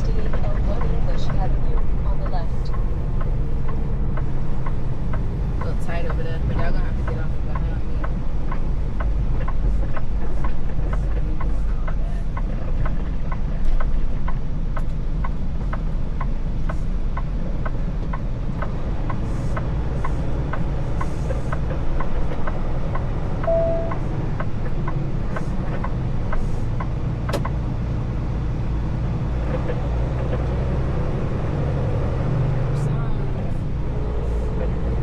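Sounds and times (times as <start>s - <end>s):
truck engine rumble: 0.0s - 35.0s
turn signal ticking: 0.0s - 35.0s
short beep: 23.4s - 24.1s.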